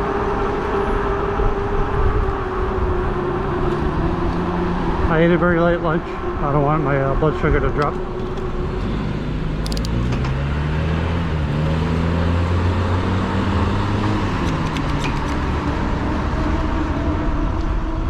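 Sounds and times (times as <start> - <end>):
wind noise on microphone: 0.0 - 5.2.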